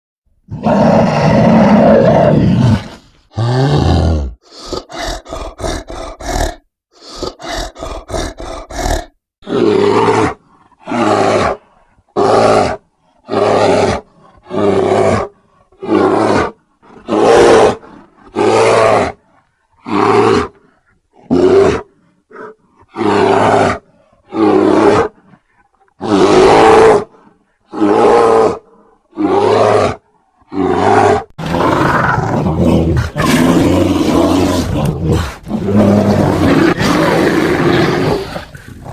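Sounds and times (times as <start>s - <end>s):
bear roaring and growling: 0.5s - 38.9s.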